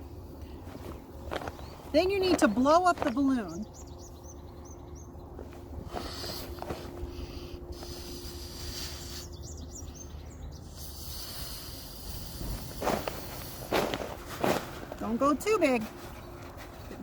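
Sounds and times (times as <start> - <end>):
small birds chirping: 0.0 - 17.0
person blowing into a balloon: 5.8 - 9.4, 10.7 - 13.9.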